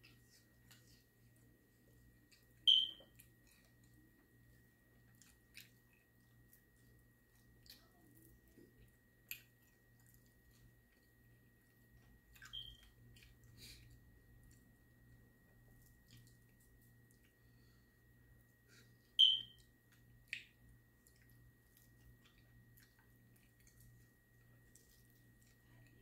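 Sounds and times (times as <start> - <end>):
chewing: 0.0 - 14.7, 15.6 - 17.5, 19.6 - 26.0
faint steady hum: 0.0 - 26.0.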